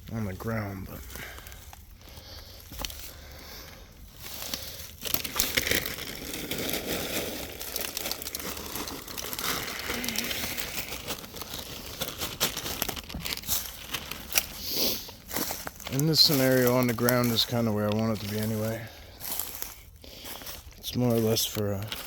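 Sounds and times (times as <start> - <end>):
crinkling rustle of items: 0.0 - 22.0.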